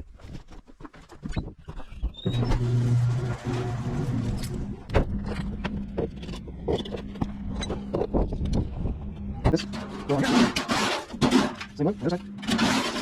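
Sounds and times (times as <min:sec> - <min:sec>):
motor humming: 0:02.1 - 0:13.0
knocks and clicks: 0:04.4 - 0:12.8.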